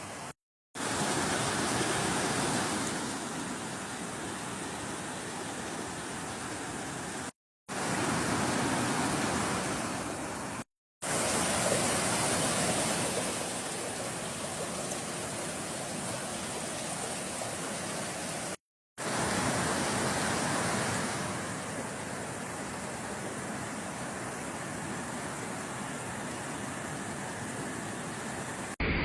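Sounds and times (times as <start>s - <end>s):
water rushing over dam: 0.0s - 28.8s.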